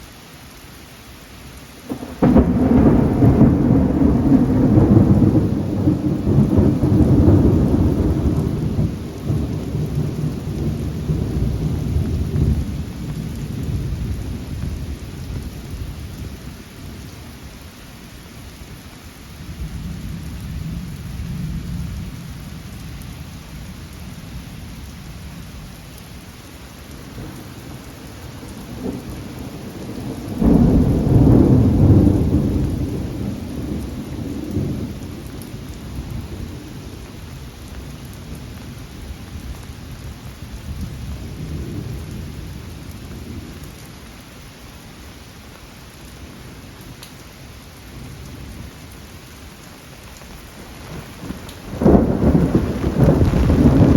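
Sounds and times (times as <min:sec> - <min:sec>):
steady rain: 0:00.0 - 0:53.9
thunder rumbling: 0:01.9 - 0:16.3, 0:27.0 - 0:38.8, 0:40.0 - 0:43.8, 0:50.5 - 0:53.9.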